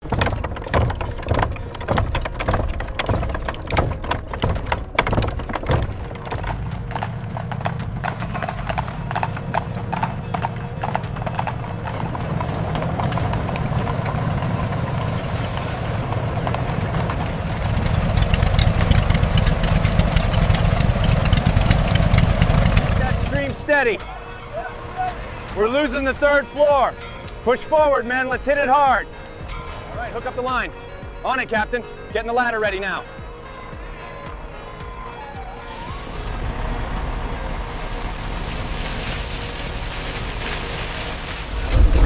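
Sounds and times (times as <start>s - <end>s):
horse hooves clip-clopping: 0.0s - 42.0s
rumbling noise: 11.6s - 31.5s, 35.8s - 42.0s.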